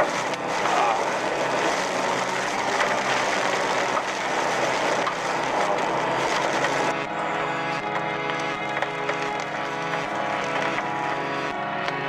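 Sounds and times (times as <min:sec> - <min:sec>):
hail beating on a vehicle: 0:00.0 - 0:07.0
wind: 0:00.0 - 0:12.0.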